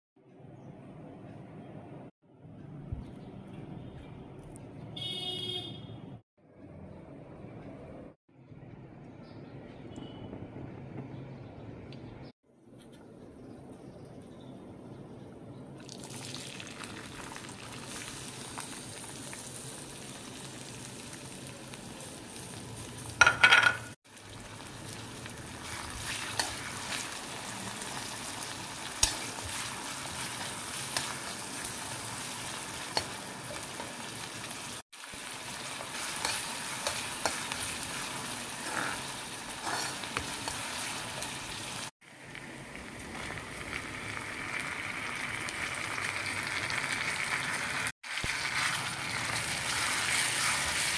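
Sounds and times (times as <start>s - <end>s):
onions sizzling in hot oil: 16.0s - 23.4s, 24.1s - 50.9s
metal spatula scraping pan: 38.5s - 40.3s.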